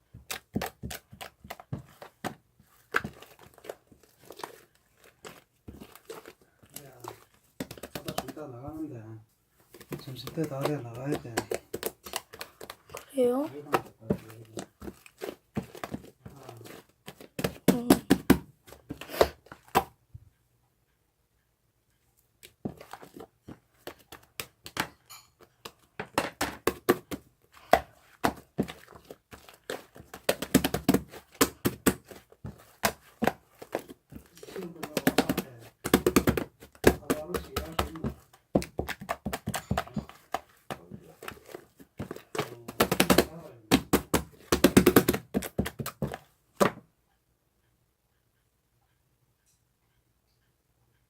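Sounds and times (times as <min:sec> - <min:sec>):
rapid taps and clicks: 0:34.3 - 0:41.4, 0:42.0 - 0:46.8.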